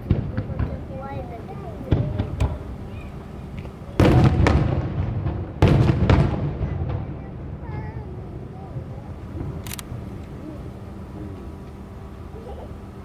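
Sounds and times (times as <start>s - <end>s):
fireworks crackling pops: 0.0s - 7.8s, 8.8s - 10.4s
fireworks loud bangs: 0.0s - 12.2s.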